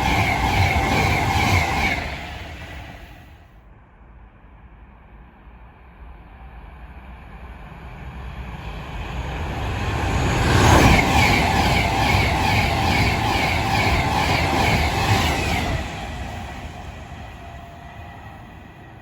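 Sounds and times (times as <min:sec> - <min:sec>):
clatter of train wheels: 0:00.0 - 0:03.0, 0:09.3 - 0:19.0
train passing rumble: 0:00.0 - 0:19.0.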